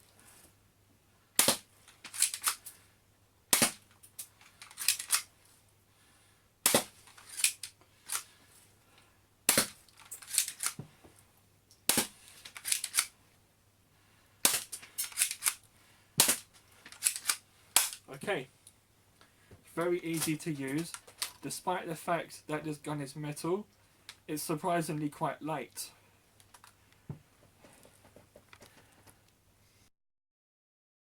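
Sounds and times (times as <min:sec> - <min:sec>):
airsoft pistol shots: 0:16.2 - 0:16.5.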